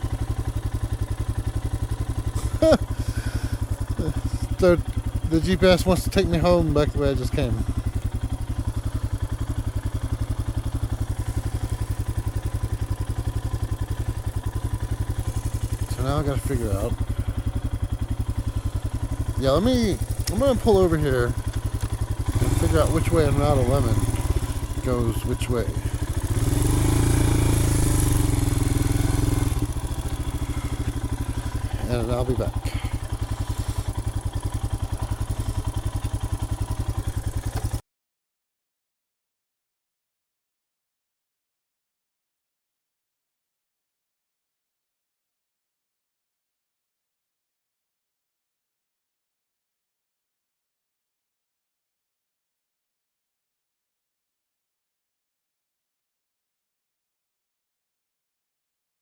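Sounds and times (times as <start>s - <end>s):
motorcycle engine thumping: 0.0s - 37.8s.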